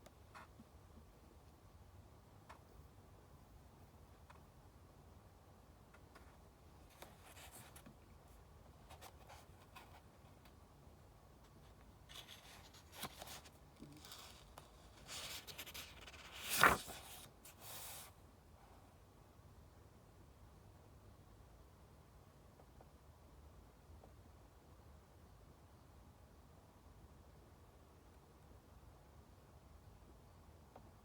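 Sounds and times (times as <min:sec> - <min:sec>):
paper rustling: 0:12.1 - 0:18.1
page turning swish: 0:15.2 - 0:18.0.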